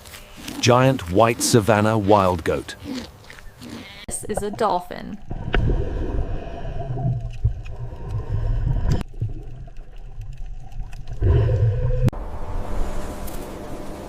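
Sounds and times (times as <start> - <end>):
low rumbling water noise: 4.2 - 14.0.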